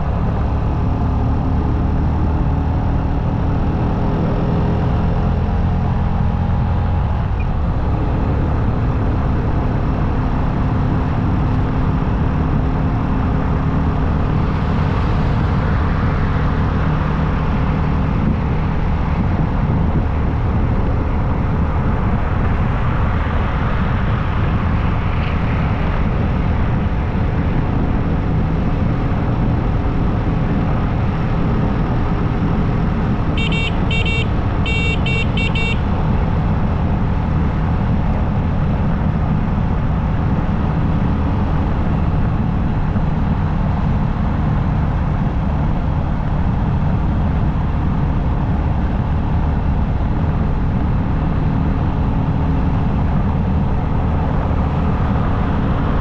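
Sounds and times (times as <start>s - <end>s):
wind and road noise: 0.0s - 56.0s
short high-pitched beeps: 33.4s - 35.8s.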